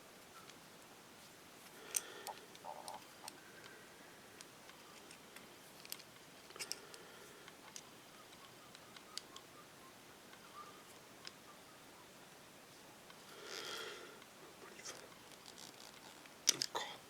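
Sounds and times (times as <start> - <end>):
small parts and tools clicking: 1.9 - 3.4, 5.8 - 6.9, 15.3 - 16.8.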